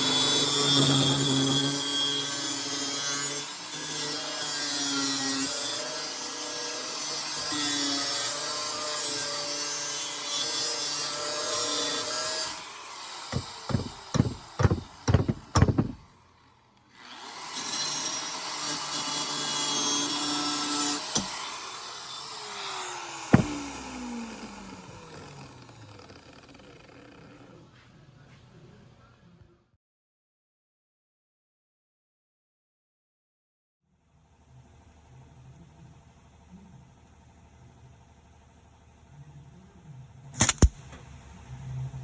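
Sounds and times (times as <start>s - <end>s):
power grinder grinding metal: 0.0s - 16.0s, 17.0s - 27.6s
sharp knocks: 13.3s - 16.0s, 23.3s - 24.1s
grinder motor spinning down: 21.2s - 27.7s.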